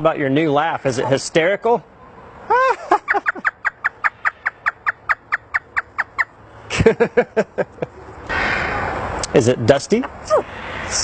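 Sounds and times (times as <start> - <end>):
parrot imitating laughter: 2.5 - 6.2.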